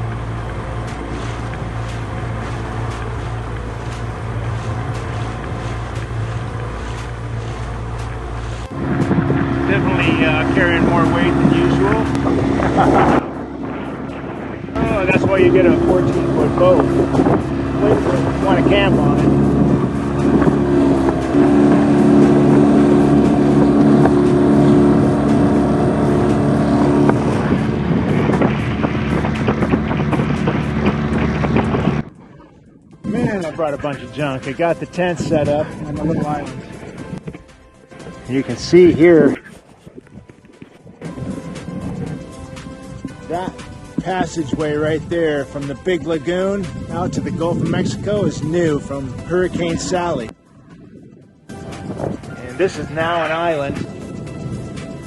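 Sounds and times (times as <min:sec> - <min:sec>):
outboard motor running: 0:00.0 - 0:55.0
wind and water rushing: 0:00.0 - 0:55.0.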